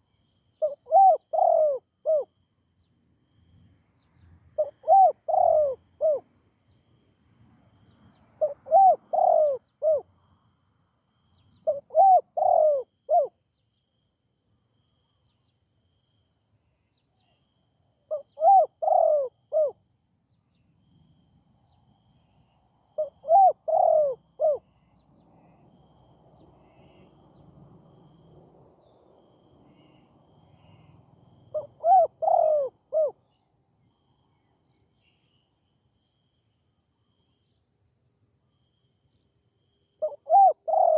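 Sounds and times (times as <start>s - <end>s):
dove cooing: 0.6s - 2.3s, 4.6s - 6.3s, 8.4s - 10.1s, 11.6s - 13.4s, 18.1s - 19.8s, 23.0s - 24.7s, 31.5s - 33.2s, 40.0s - 40.9s.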